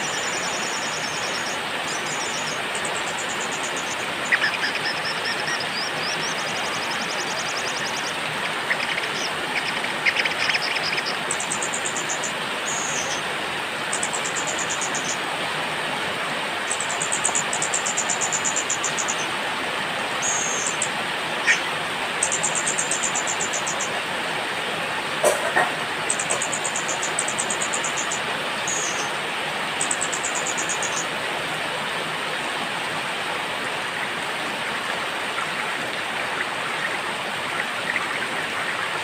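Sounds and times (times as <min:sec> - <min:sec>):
songbirds trilling and chirping: 0:00.0 - 0:13.2, 0:20.2 - 0:24.0, 0:25.2 - 0:29.2
steady rain hiss: 0:00.0 - 0:39.0.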